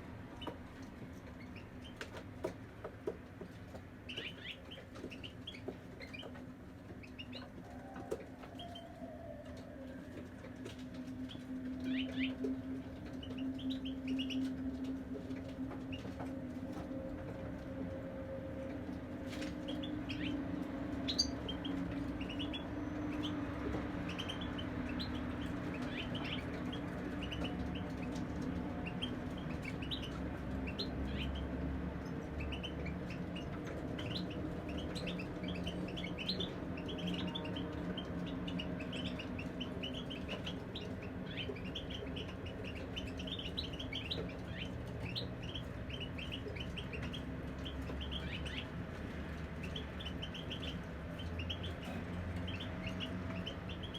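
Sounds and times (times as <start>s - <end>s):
finches chirping and trilling: 4.1s - 6.4s, 11.2s - 16.2s, 19.4s - 48.8s, 49.4s - 53.9s.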